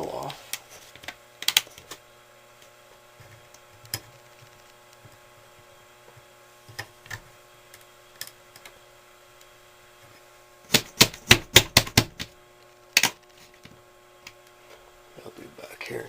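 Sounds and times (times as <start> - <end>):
clicks and taps on fan grill: 10.7 - 12.4.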